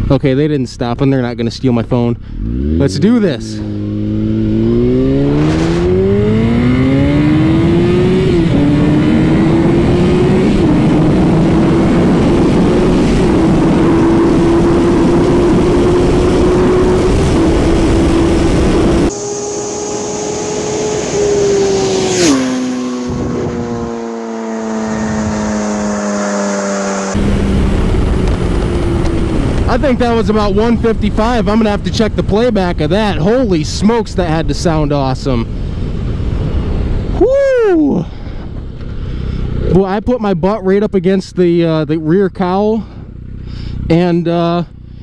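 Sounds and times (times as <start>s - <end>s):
motorcycle engine accelerating: 0.0s - 45.0s
motorcycle passing at speed: 2.2s - 31.7s
wind rush: 2.4s - 39.6s.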